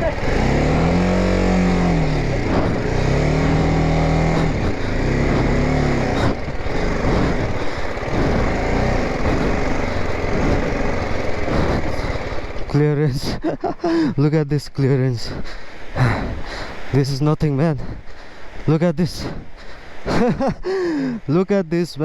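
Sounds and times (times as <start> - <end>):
motorcycle engine revving: 0.0 - 14.1.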